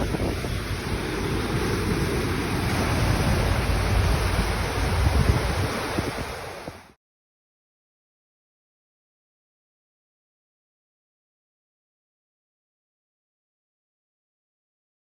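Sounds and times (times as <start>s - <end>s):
heavy low rumble: 0.0s - 5.9s
rushing water and surf: 0.0s - 7.0s
wind buffeting microphone: 0.0s - 7.0s.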